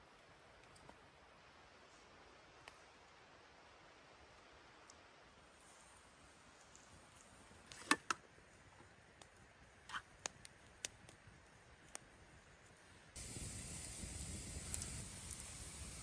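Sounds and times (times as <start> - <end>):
faint steady hiss: 0.0 - 16.0
sharp clicks and snaps: 14.6 - 15.5.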